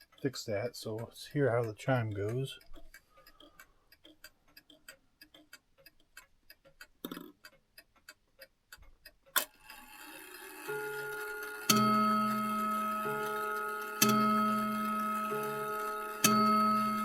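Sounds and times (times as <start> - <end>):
clock ticking: 0.0 - 9.4, 10.2 - 17.0
chime gears whirring: 10.4 - 17.0
hammer striking chime bar: 10.8 - 17.0.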